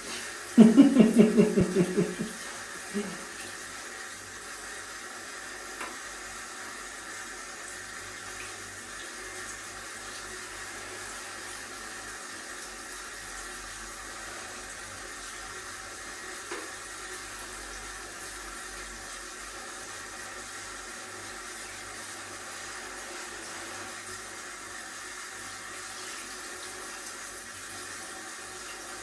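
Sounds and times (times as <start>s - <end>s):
shower water spraying: 0.0s - 29.0s.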